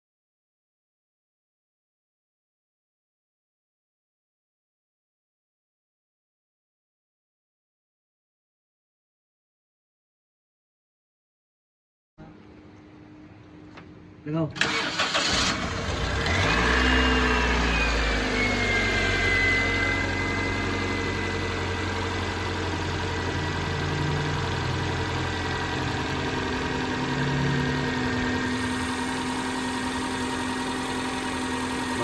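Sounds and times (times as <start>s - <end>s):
car engine idling: 14.7s - 32.0s
high whine dropping in pitch: 16.4s - 32.0s.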